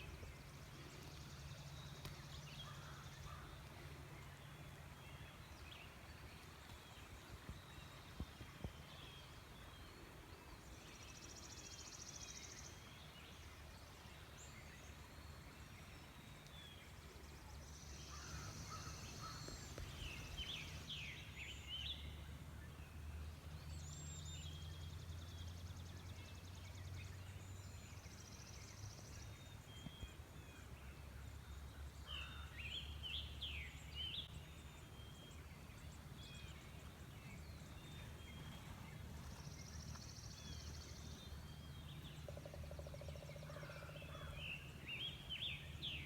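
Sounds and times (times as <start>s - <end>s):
birds chirping and trilling: 17.6s - 22.0s, 31.8s - 46.0s.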